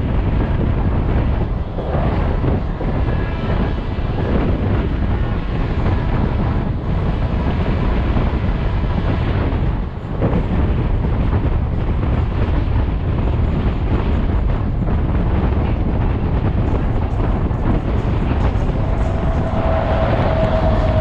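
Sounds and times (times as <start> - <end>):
train running at speed: 0.0 - 21.0
wind buffeting microphone: 0.0 - 21.0.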